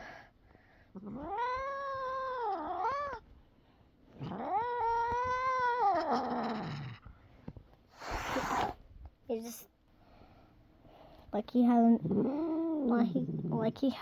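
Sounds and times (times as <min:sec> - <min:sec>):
cat yowling: 0:01.0 - 0:03.2.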